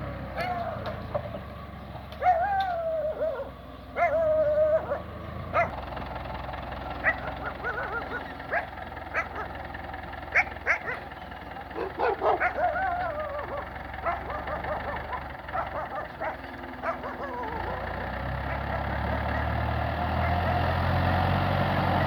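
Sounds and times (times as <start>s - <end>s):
low engine hum: 0.0s - 22.0s
dog whining and yelping: 0.4s - 0.8s, 2.2s - 5.7s, 7.0s - 9.5s, 10.3s - 11.1s, 11.8s - 19.5s.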